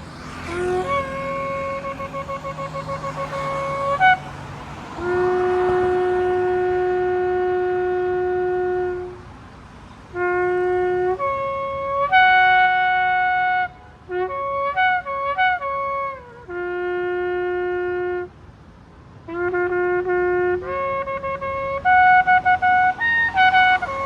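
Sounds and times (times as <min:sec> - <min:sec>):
ram's-horn trumpet blasts: 0:00.4 - 0:09.2, 0:19.3 - 0:24.0.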